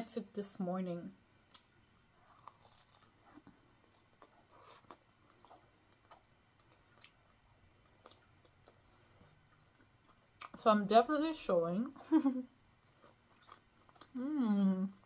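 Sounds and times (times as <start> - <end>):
faint chewing: 1.4 - 10.6, 12.6 - 15.0
small mouth clicks: 1.5 - 1.7.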